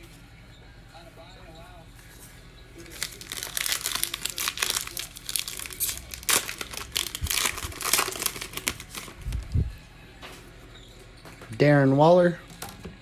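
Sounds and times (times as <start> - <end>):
plastic wrapper tearing and crinkling: 2.8 - 9.6.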